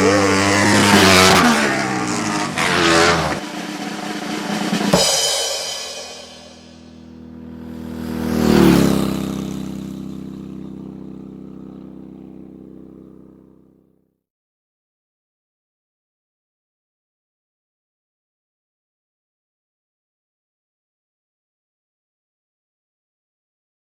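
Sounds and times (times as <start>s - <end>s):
drum hit: 0.0s - 9.5s
racing motorcycle engine revving: 0.0s - 13.9s.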